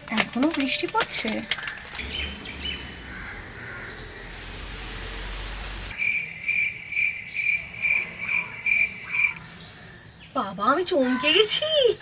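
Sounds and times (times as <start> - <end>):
rain hiss: 2.0 - 6.0.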